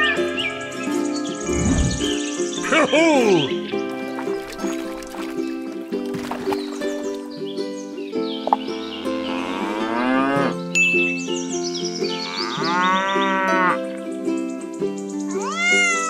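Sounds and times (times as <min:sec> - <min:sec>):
background music: 0:00.0 - 0:16.0
cows mooing: 0:09.3 - 0:10.6, 0:12.2 - 0:13.8.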